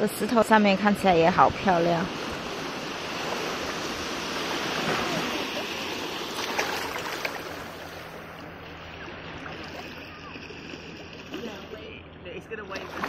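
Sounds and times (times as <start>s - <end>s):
seawater rushing over rocks: 1.1s - 12.0s
short sharp splashes: 4.2s - 8.1s, 12.7s - 13.0s.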